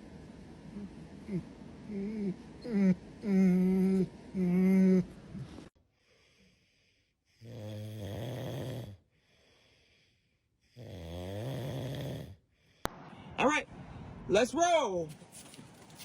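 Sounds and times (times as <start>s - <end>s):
dog snoring: 7.4s - 9.0s, 10.7s - 12.4s.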